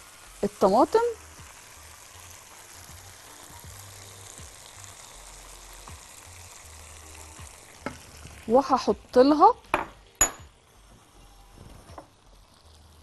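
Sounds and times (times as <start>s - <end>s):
food sizzling in a frying pan: 0.0s - 13.0s
woman speaking: 0.4s - 1.2s, 8.5s - 9.6s.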